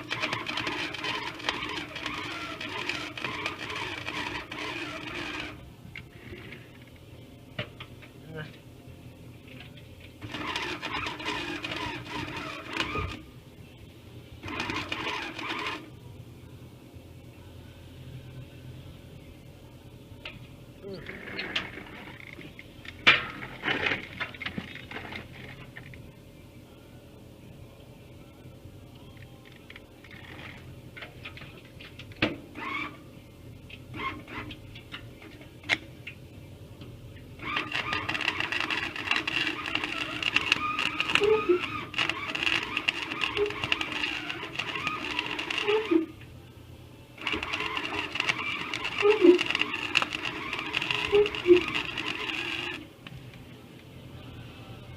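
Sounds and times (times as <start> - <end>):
welder arc crackling and buzzing: 0.0 - 5.6, 10.2 - 13.3, 37.4 - 46.2, 47.2 - 53.4
scattered clicks: 47.2 - 52.8.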